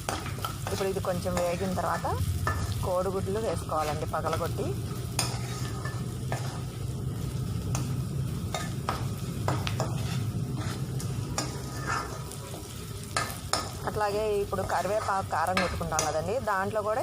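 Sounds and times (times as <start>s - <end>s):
onions sizzling in oil: 0.0s - 17.0s
spatula knocking on frying pan: 8.6s - 10.0s.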